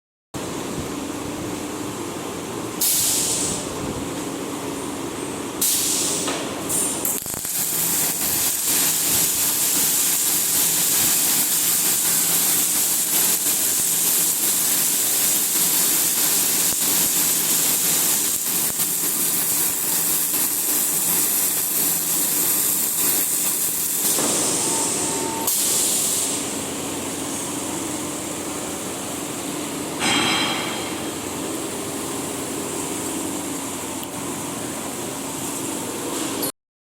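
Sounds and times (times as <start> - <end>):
welding machine hum: 2.2 - 36.5
welding arc hissing and crackling: 2.8 - 3.8, 5.6 - 29.5.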